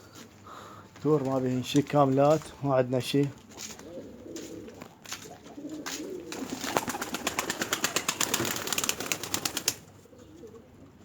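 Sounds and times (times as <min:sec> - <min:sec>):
pigeons cooing faintly: 0:03.2 - 0:11.0
pigeon wings beating: 0:04.5 - 0:09.9.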